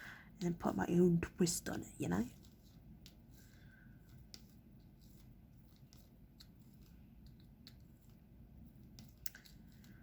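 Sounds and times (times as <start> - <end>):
faint clicks and taps of resin drills: 8.8 - 10.0.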